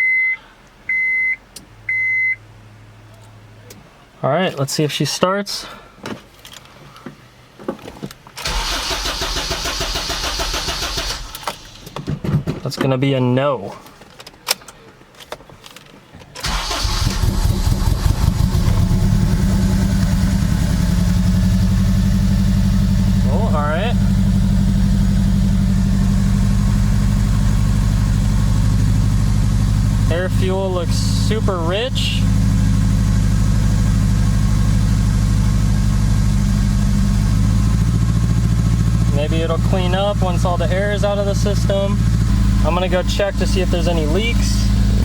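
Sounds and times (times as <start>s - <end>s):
car engine starting and idling: 8.4s - 12.1s, 16.4s - 45.0s.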